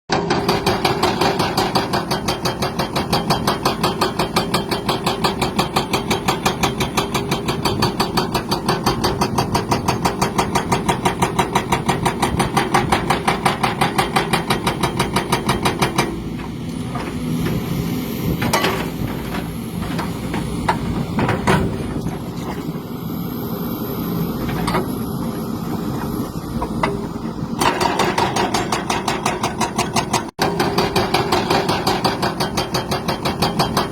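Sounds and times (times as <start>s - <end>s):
engine running with rhythmic knock: 0.1s - 33.9s.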